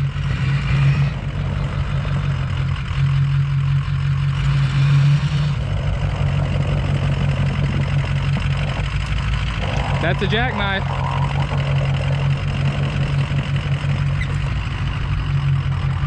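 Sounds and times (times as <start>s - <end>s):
pickup truck engine running: 0.0s - 16.0s.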